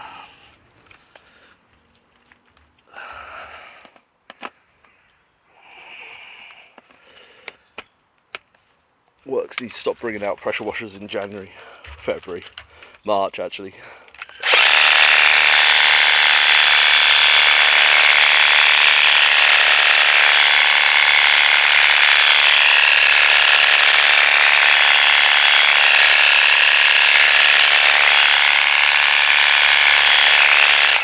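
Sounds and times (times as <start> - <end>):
pressure washer motor rattling: 14.3 - 31.0.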